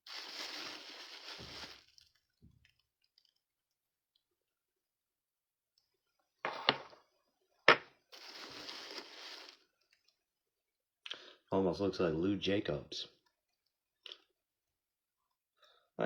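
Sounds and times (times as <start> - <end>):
packing material rustling: 0.0 - 2.2, 8.1 - 9.9.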